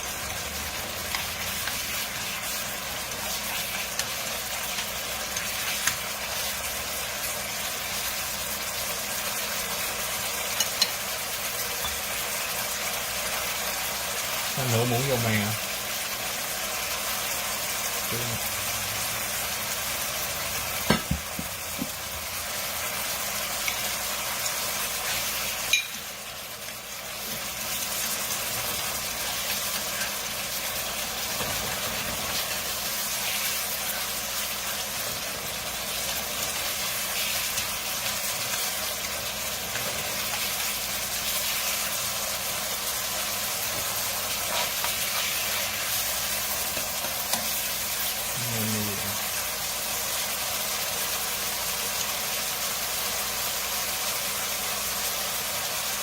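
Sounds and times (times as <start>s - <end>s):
sauce sizzling in a pan: 0.0s - 56.0s
utensil knocking on a pan: 20.9s - 22.0s.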